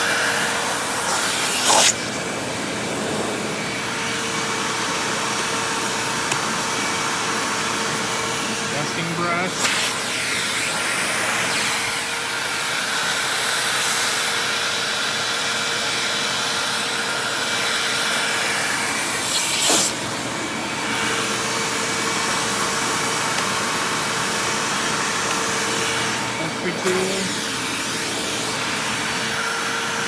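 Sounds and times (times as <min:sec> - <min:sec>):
vacuum cleaner motor whine: 0:00.0 - 0:30.0.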